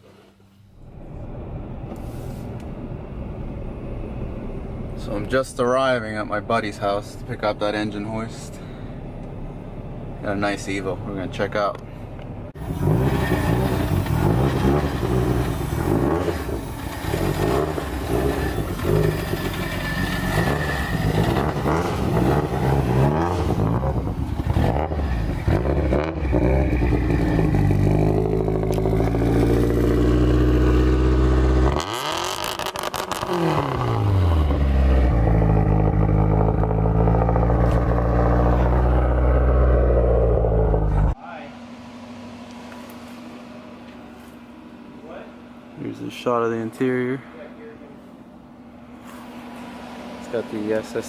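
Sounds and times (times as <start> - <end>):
car engine revving on limiter: 12.6 - 43.8.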